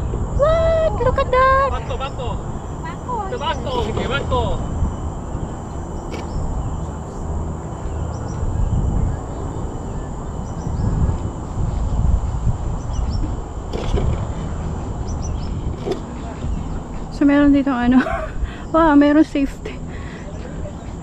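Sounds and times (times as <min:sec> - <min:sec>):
wind buffeting microphone: 0:00.0 - 0:21.0
thin high tone: 0:00.3 - 0:08.5.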